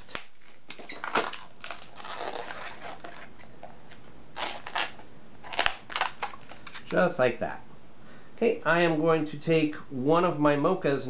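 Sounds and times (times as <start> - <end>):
balloon rubbing squeaks: 0.0 - 3.6, 4.4 - 6.6.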